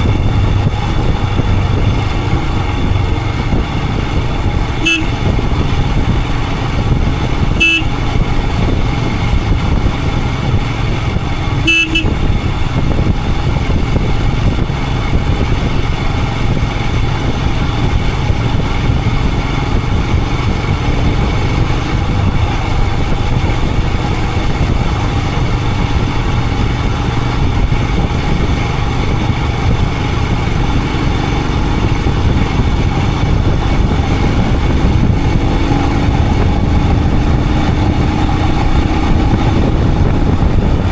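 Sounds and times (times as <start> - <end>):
motorcycle engine running: 0.0 - 40.9
road noise: 0.0 - 40.9
motorcycle horn toots: 3.9 - 9.1, 11.5 - 12.8.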